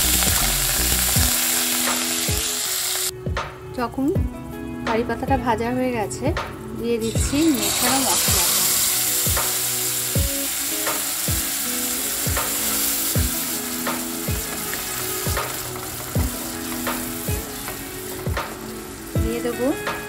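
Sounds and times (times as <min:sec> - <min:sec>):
paste sizzling in hot oil: 0:00.0 - 0:03.1, 0:07.0 - 0:20.0
background music with beat: 0:00.0 - 0:20.0
spatula stirring: 0:07.1 - 0:19.2.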